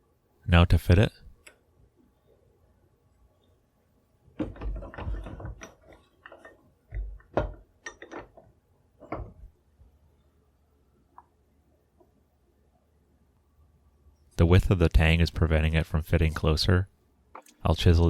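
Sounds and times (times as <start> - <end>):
metal buttplate knocking on wood: 6.9 - 8.4.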